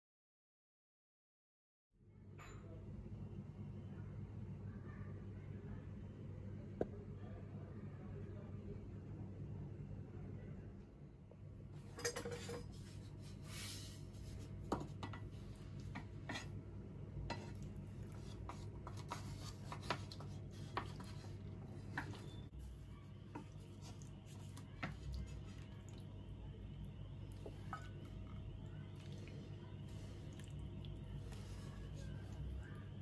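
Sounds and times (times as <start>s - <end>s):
steady low hum: 2.1s - 33.0s
dishes and utensils clinking: 11.8s - 13.0s, 27.3s - 28.4s.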